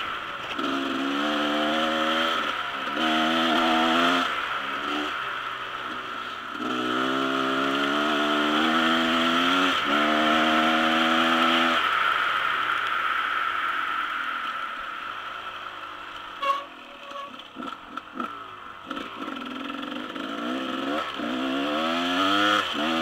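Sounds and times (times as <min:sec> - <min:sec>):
dirt bike engine revving: 0:00.4 - 0:05.2, 0:06.5 - 0:11.9, 0:16.4 - 0:23.0
steady hiss: 0:09.8 - 0:21.3.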